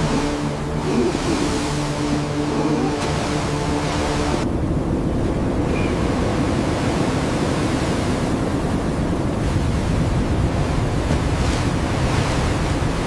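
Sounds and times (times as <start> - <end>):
blizzard wind rushing: 0.0 - 13.0.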